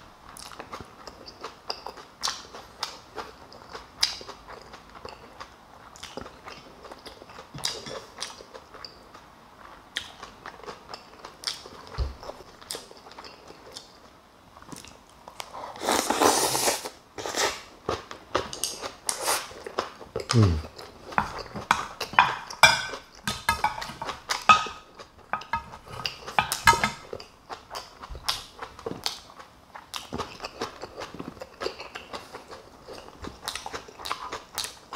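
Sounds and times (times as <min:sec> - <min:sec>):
close-up chewing with wet smacks: 0:00.3 - 0:15.5, 0:24.1 - 0:34.9.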